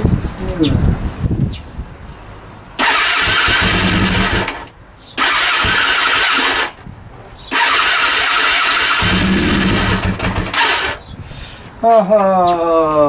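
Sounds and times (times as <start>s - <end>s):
motorcycle engine cranking: 2.8s - 6.8s, 7.4s - 11.1s.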